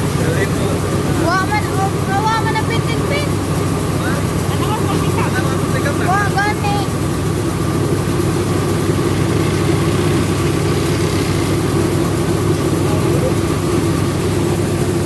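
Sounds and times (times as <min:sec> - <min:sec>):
milling machine droning: 0:00.0 - 0:15.0.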